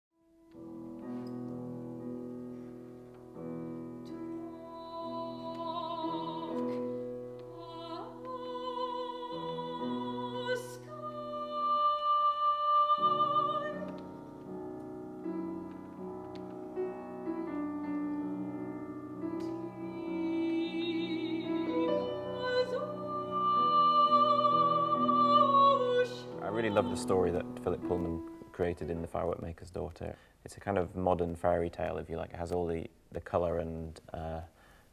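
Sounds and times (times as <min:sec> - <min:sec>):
operatic singing with vibrato: 0:07.5 - 0:14.0, 0:19.7 - 0:28.2.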